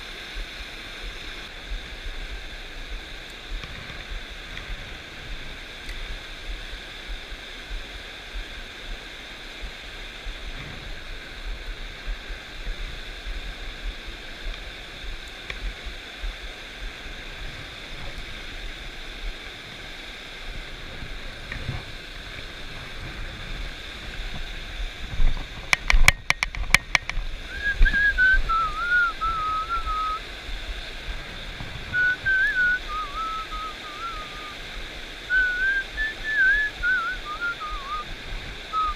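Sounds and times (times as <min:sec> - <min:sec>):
stream water rushing: 0:00.0 - 0:38.9
person whistling a tune: 0:27.5 - 0:30.2, 0:32.0 - 0:34.6, 0:35.3 - 0:38.0.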